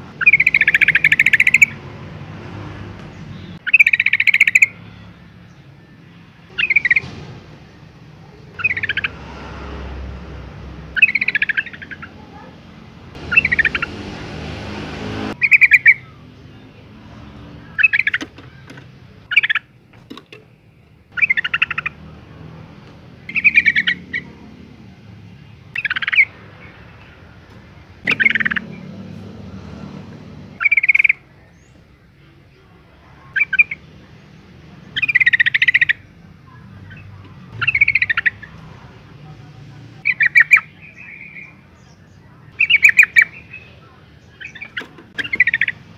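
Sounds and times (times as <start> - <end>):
bird calling: 0.0 - 1.9, 3.1 - 5.1, 6.5 - 9.4, 10.8 - 16.8, 17.6 - 20.5, 21.1 - 22.4, 23.1 - 24.7, 25.4 - 27.3, 28.0 - 29.8, 30.5 - 31.8, 33.2 - 34.0, 34.8 - 38.8, 40.0 - 45.9.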